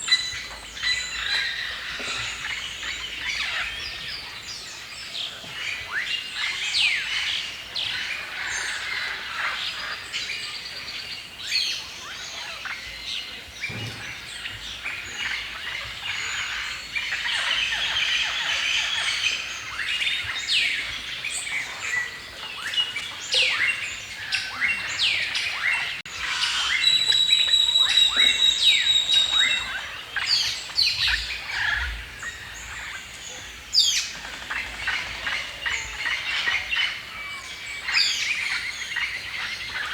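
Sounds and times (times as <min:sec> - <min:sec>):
birds chirping and singing: 0:00.0 - 0:39.9
bird whistling high note: 0:26.5 - 0:29.7.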